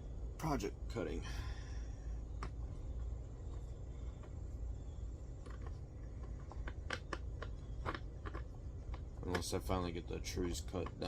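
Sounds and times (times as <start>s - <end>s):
low steady rumble: 0.0s - 11.0s
parts clicking and tapping: 5.4s - 11.0s.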